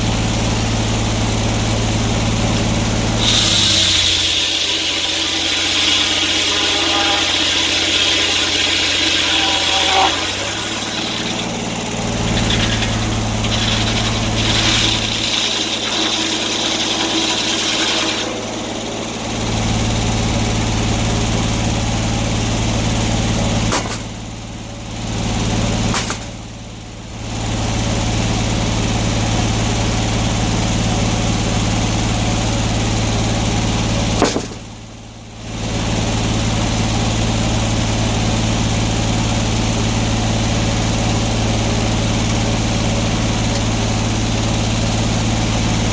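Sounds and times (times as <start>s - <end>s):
sawmill engine running: 0.0s - 45.9s
high-pitched noise: 3.2s - 18.8s.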